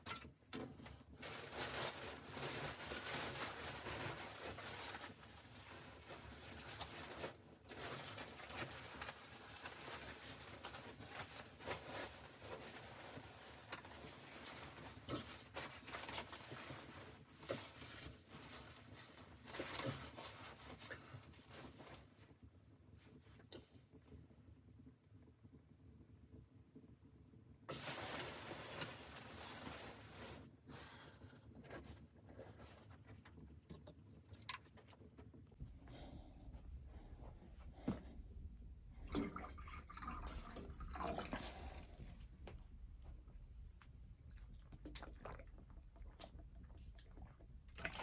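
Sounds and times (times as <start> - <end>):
rustling and scraping: 0.0 - 22.4, 27.7 - 35.7.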